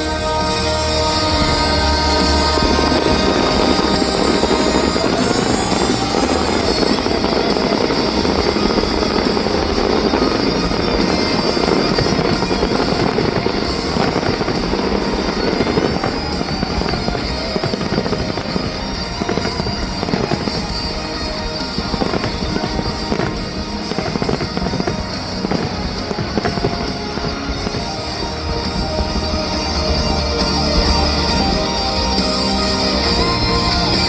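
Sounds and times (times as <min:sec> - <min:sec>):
fireworks bursting and crackling: 0:00.0 - 0:34.0
music: 0:00.0 - 0:34.0.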